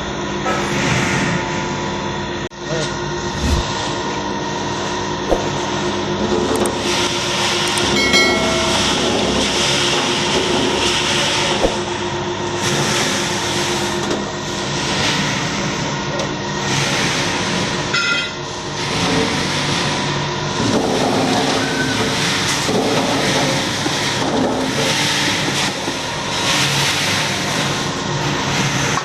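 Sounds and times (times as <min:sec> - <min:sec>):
machine running with hum: 0:00.0 - 0:21.3.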